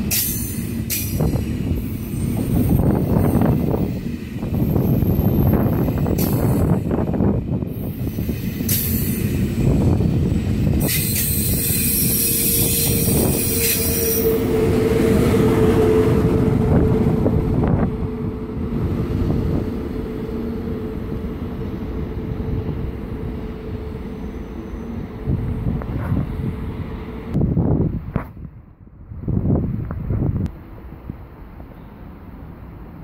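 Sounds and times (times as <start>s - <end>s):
train wheels squealing: 0.0s - 6.8s, 7.7s - 14.5s, 23.8s - 25.2s
rumble of train cars: 0.0s - 33.0s.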